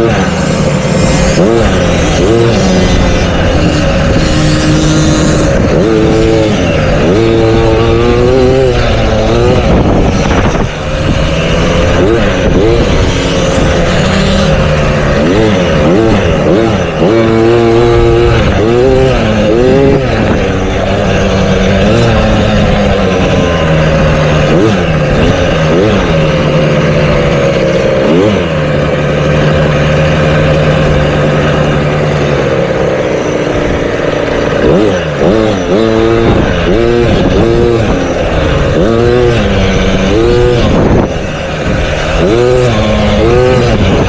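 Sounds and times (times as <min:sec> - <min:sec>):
motocross bike engine revving: 0:00.0 - 0:44.0.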